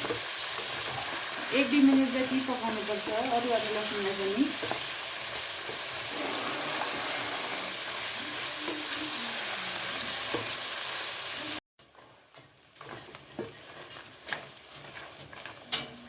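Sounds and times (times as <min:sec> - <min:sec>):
chicken sizzling in oil: 0:00.0 - 0:16.0
spoon stirring in a pan: 0:00.0 - 0:16.0.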